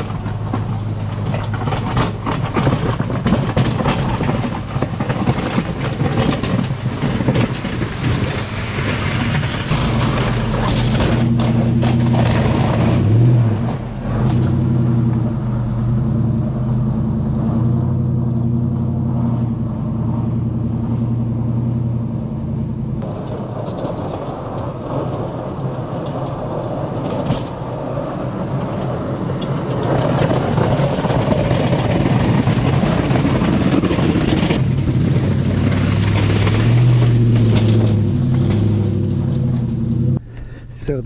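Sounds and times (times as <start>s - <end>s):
plow blade scraping snow and ice: 0.0s - 41.0s
truck engine running: 0.0s - 41.0s.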